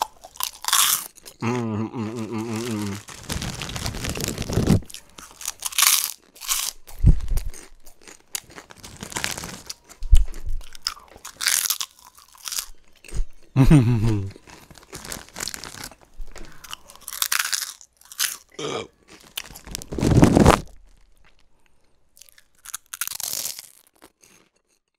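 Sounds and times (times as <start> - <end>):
crunching crisp snack: 0.0 - 24.9
person humming mmm: 1.4 - 3.4, 13.6 - 14.4, 18.6 - 18.9.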